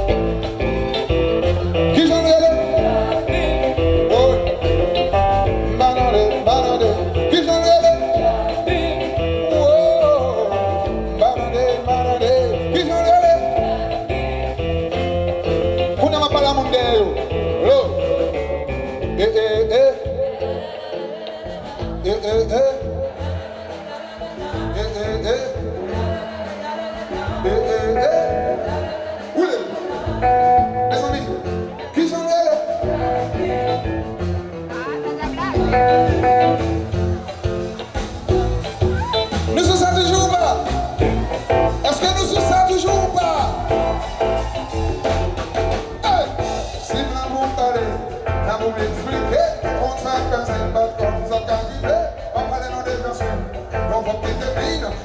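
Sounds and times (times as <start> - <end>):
repeating bass line: 0.0 - 20.7, 32.8 - 55.0
live band music: 0.0 - 55.0.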